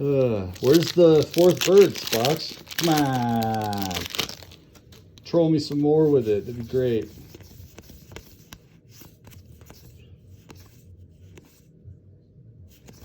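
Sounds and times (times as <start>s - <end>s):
low background hum: 0.0s - 13.0s
cards being flipped: 0.5s - 5.9s.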